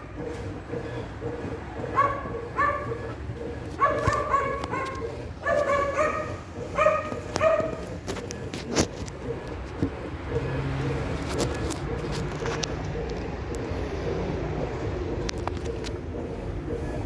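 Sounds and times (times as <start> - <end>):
dog barking: 1.8 - 3.1, 3.8 - 8.0.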